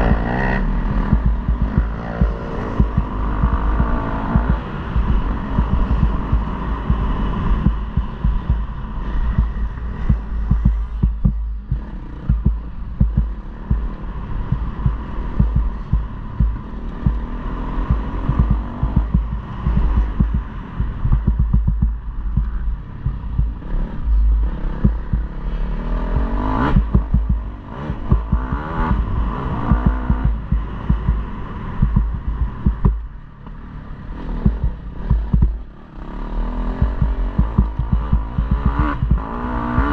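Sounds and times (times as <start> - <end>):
low thumping and buffeting: 0.0 - 35.8, 36.6 - 39.9
motorbike engine revving: 0.0 - 39.9.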